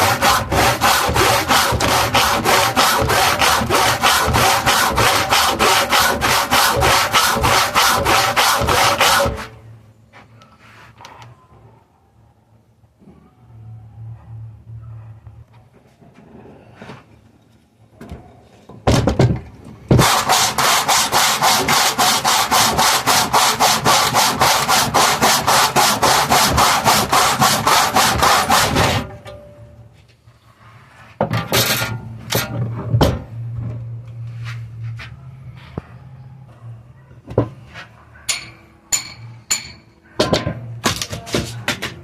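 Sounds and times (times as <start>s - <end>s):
hand saw cutting wood: 0.0s - 9.5s, 19.9s - 29.2s.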